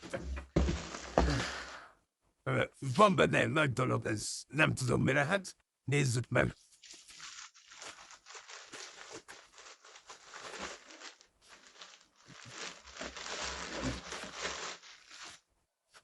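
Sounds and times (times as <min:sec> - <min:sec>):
packaging crinkling and tearing: 0:06.8 - 0:15.4.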